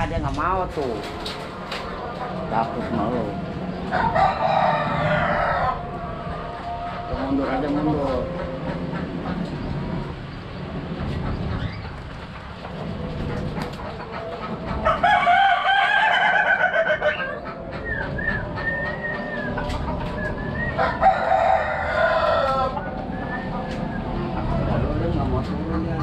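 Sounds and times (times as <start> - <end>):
long wavering bird calls: 15.8 - 25.0.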